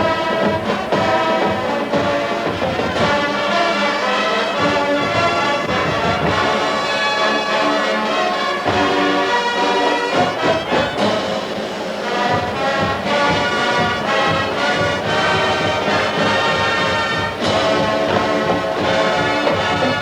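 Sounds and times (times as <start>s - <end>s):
brass band playing: 0.0s - 20.0s
drums: 0.0s - 20.0s.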